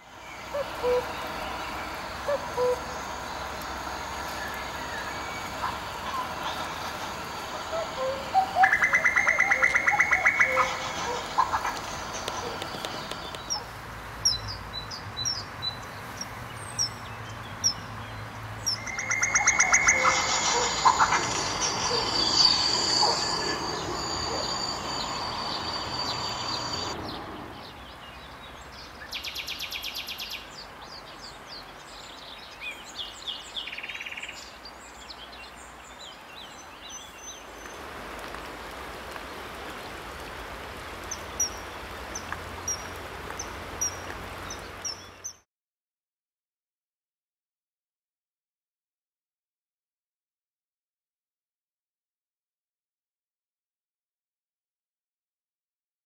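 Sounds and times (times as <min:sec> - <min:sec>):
outdoor hiss: 0:00.0 - 0:14.3, 0:18.5 - 0:28.0, 0:28.7 - 0:45.3
wild birds singing: 0:00.0 - 0:37.9
rapid dry bird trill: 0:00.2 - 0:13.7, 0:18.7 - 0:27.0
short high chirps: 0:18.7 - 0:27.0.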